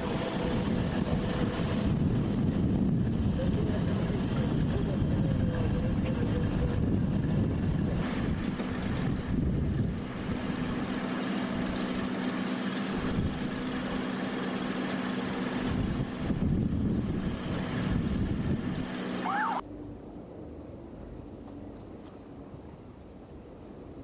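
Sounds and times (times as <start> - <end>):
strong wind on microphone: 0.0 - 10.8, 15.6 - 19.6
engine hum: 0.0 - 24.0.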